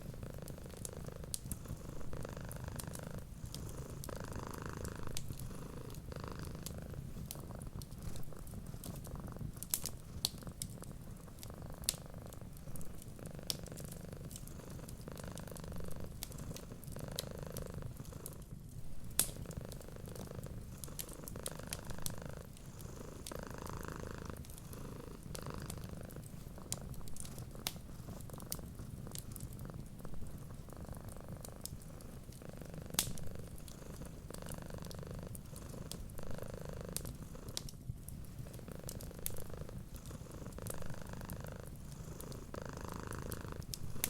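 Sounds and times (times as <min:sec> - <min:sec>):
cat purring: 0:00.0 - 0:44.0
wood fire crackling: 0:00.0 - 0:44.0.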